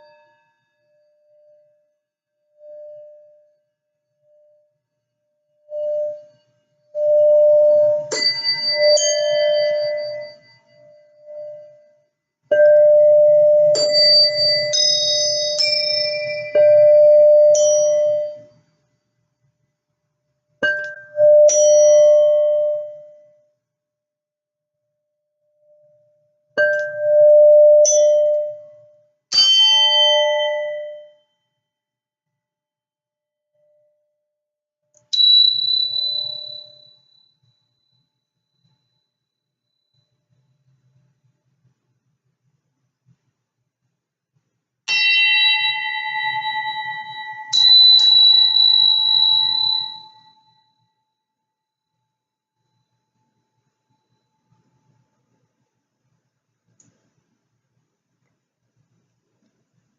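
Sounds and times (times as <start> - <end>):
singing bowl ringing: 5.7 - 18.6, 20.6 - 23.4, 26.6 - 29.0, 29.7 - 31.4, 35.1 - 40.2, 44.9 - 51.4
struck bell ringing: 44.9 - 50.6.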